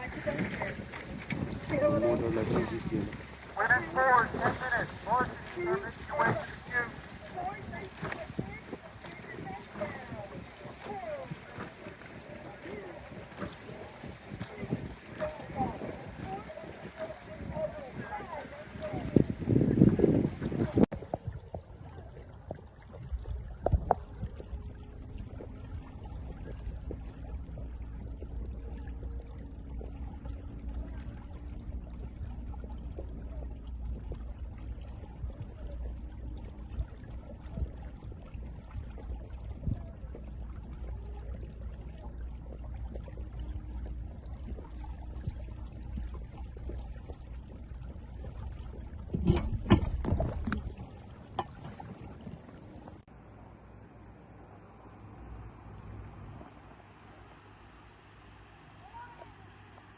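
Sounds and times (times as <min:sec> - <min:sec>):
knocks and splashes: 0:00.0 - 0:53.3
boat engine rumble: 0:00.0 - 0:59.9
water sounds: 0:00.0 - 0:59.9
faint humming tones: 0:21.3 - 0:59.9.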